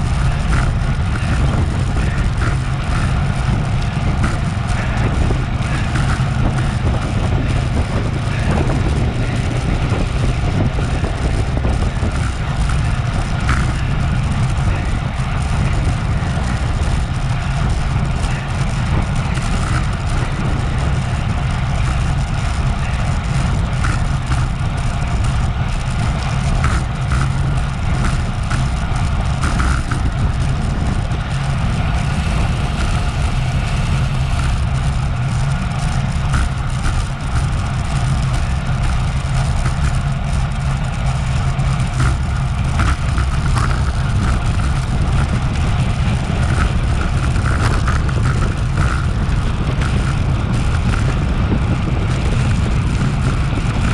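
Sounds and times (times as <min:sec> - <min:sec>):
wind rumbling on microphone: 0:00.0 - 0:53.9.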